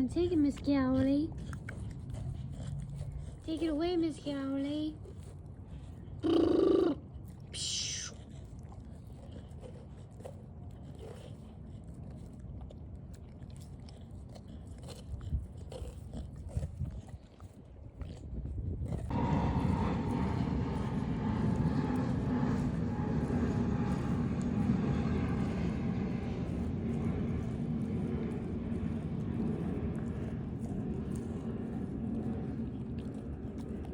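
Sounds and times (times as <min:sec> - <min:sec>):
distant engine drone: 0:00.0 - 0:16.9, 0:18.8 - 0:33.9
puppy chewing meat: 0:00.0 - 0:33.9.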